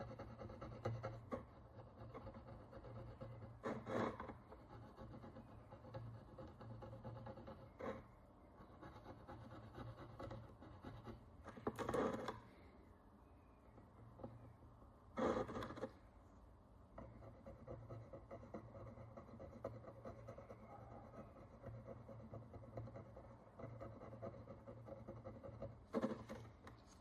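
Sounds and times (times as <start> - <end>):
tool scraping a metal coin: 0.0 - 8.1, 8.8 - 12.4, 15.2 - 16.0, 21.5 - 26.6.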